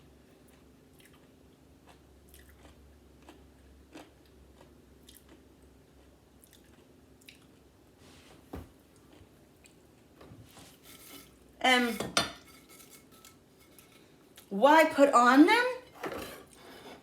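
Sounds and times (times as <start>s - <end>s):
chewing crunching chip: 0.4s - 7.6s.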